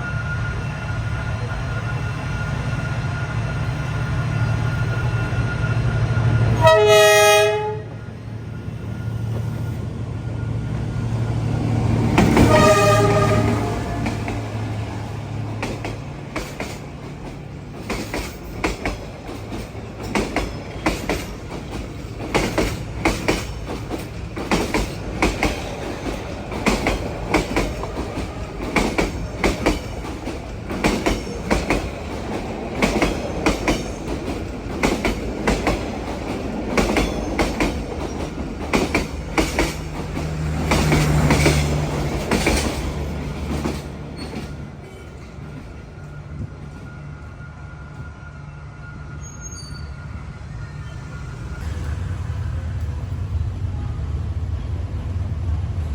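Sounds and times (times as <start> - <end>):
train rumble: 0.0 - 55.9
train wheels clacking on rails: 10.7 - 46.9.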